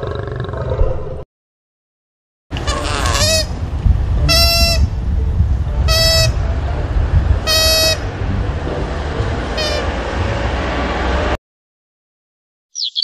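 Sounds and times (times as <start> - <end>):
koala bellowing: 2.6 - 3.5.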